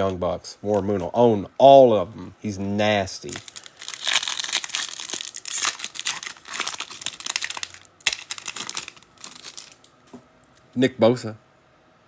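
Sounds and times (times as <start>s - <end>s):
foil wrapper crinkling and tearing: 3.2s - 9.9s.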